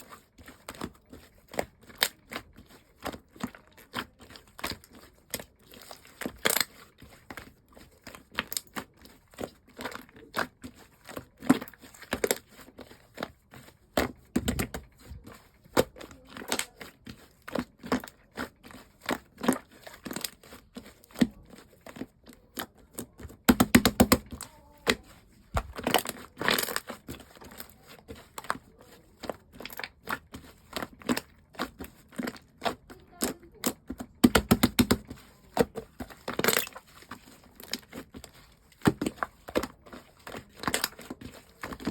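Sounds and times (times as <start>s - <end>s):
slime squished by hand: 0.0s - 41.9s
sticky clicks and pops: 23.5s - 24.4s, 33.2s - 35.0s.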